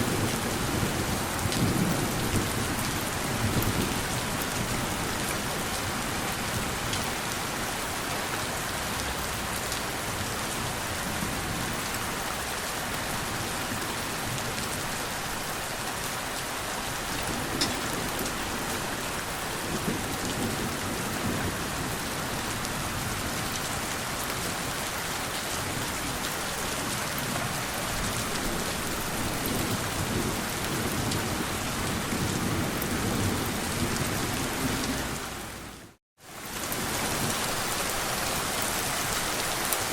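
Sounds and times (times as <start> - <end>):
steady rain: 0.0 - 39.9
raindrops ticking: 17.1 - 18.5.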